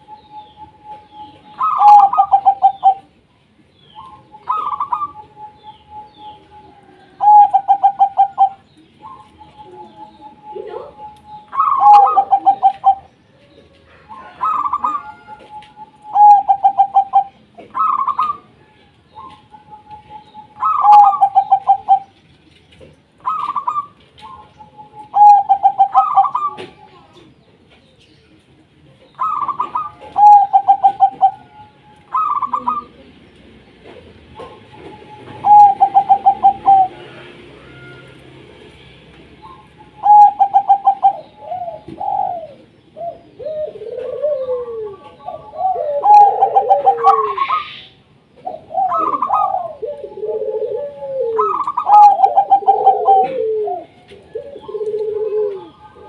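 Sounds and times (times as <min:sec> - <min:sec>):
dove cooing with trills: 0:00.0 - 0:27.3, 0:28.8 - 0:33.2, 0:33.8 - 0:56.0.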